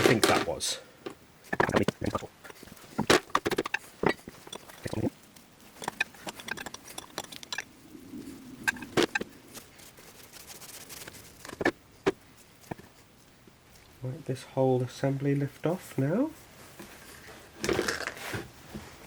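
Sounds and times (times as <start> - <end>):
metal parts clinking and knocking: 0.0 - 0.8, 3.0 - 5.1, 5.8 - 7.7.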